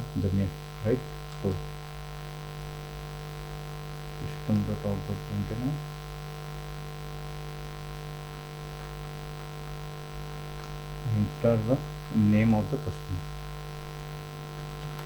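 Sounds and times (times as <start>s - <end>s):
person speaking: 0.0s - 1.7s, 4.2s - 5.9s, 11.0s - 13.4s
electrical mains hum: 0.0s - 15.0s.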